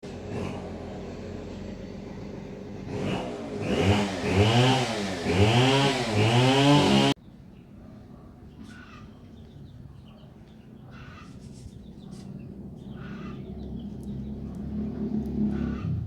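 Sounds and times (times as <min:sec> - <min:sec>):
engine idling and revving: 0:00.0 - 0:07.2, 0:12.2 - 0:16.0.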